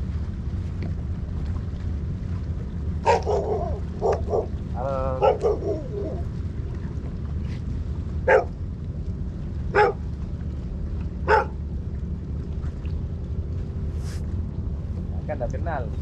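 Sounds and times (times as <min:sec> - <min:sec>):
low rumble: 0:00.0 - 0:16.0
dog barking: 0:03.0 - 0:04.5, 0:05.2 - 0:06.1, 0:08.3 - 0:08.5, 0:09.8 - 0:10.0, 0:11.3 - 0:11.6.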